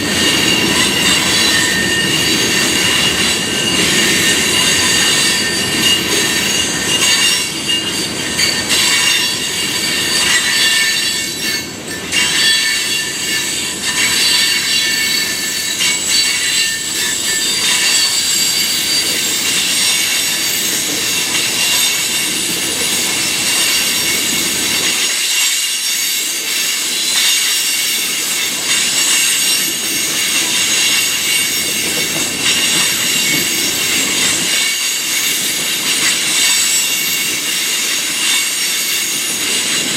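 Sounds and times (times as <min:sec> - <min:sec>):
rumble of rolling freight cars: 0:00.0 - 0:39.9
train wheels squealing: 0:00.0 - 0:39.9.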